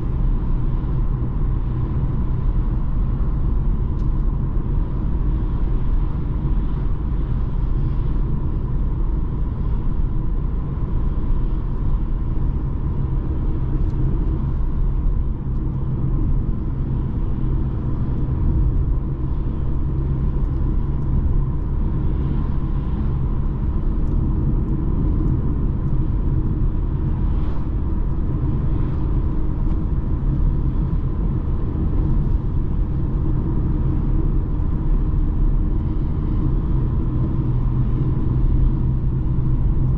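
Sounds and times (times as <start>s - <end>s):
diesel car engine rumble: 0.0s - 39.9s
tyre and road noise: 0.0s - 39.9s.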